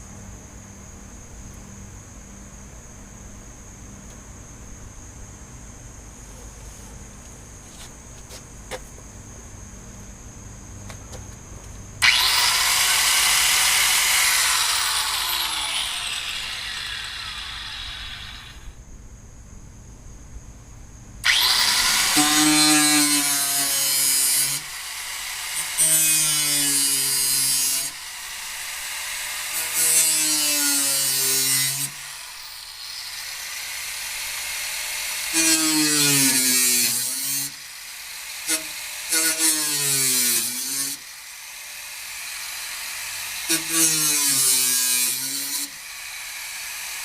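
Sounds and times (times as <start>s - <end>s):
electric power tool motor: 12.0s - 18.8s, 21.2s - 47.0s.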